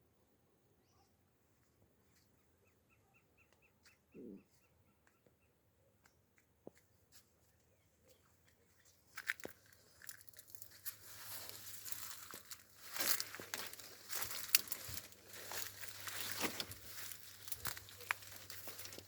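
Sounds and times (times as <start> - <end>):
rustling and crackling: 8.4 - 19.0.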